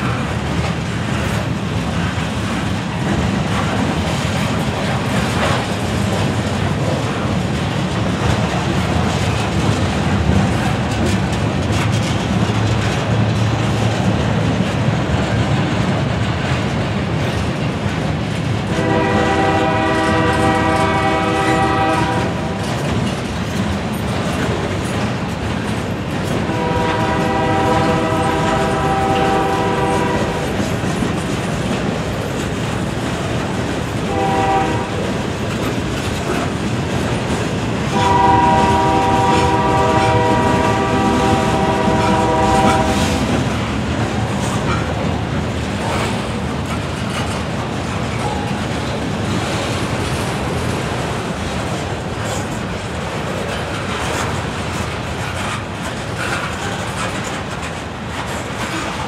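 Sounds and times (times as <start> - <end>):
freight train rumbling: 0.0 - 59.0
wheels clacking over rail joints: 0.0 - 59.0
locomotive horn blasts: 18.7 - 22.6, 26.5 - 30.4, 34.1 - 35.0, 37.9 - 43.3.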